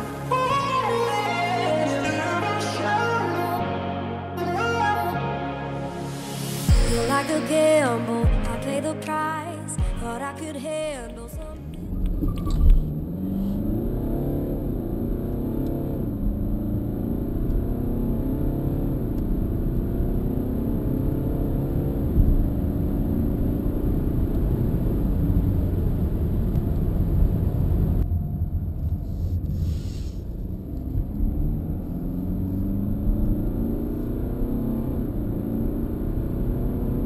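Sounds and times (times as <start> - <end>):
diesel car engine accelerating: 11.4 - 37.0.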